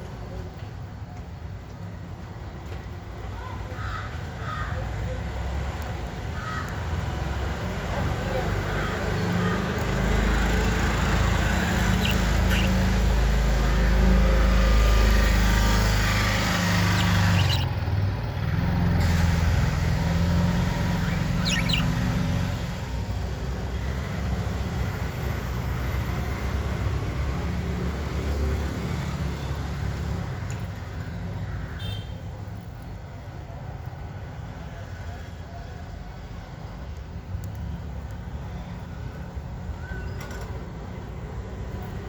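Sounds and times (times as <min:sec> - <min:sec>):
vehicle engine rumble: 0:07.3 - 0:31.5
faint budgerigar chirps: 0:10.9 - 0:17.8, 0:20.5 - 0:22.3.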